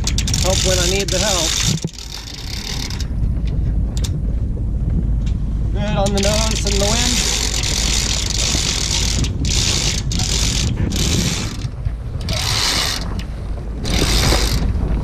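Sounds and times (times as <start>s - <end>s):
winch pawls ratcheting: 0.0s - 3.2s, 6.0s - 14.7s.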